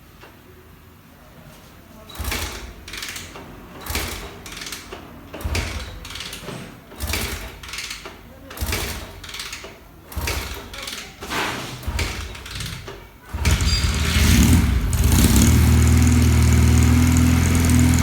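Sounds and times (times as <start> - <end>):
engine cranking over: 11.8 - 18.0.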